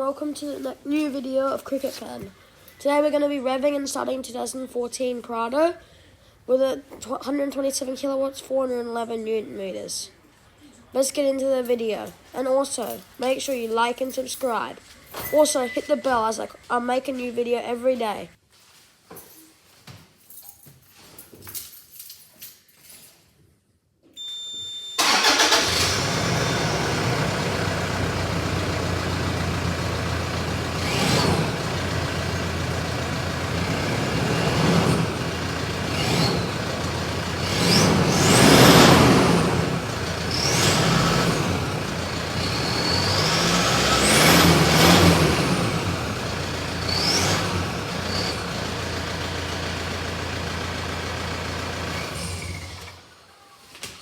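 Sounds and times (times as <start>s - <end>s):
brief tone: 15.1s - 16.2s, 24.1s - 25.0s, 53.2s - 53.7s
diesel engine starting and revving: 25.0s - 53.1s.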